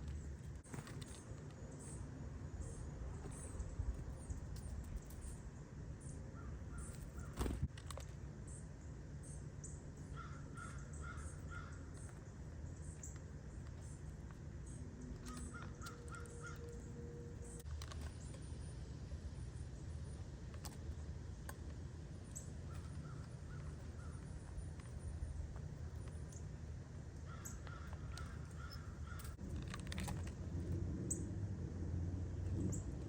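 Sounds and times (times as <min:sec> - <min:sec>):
low outdoor rumble: 0:00.0 - 0:33.0
bird calls: 0:06.0 - 0:07.7, 0:09.2 - 0:18.3, 0:22.3 - 0:25.2, 0:27.2 - 0:29.4.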